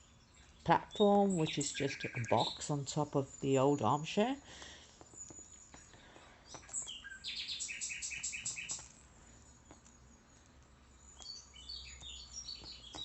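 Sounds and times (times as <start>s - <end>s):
cockatiel chirping: 6.8s - 8.9s.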